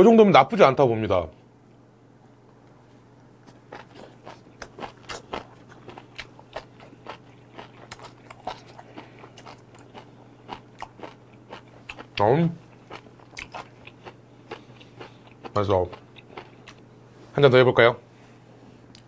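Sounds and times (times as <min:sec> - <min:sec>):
crunchy chewing: 0:03.4 - 0:16.9.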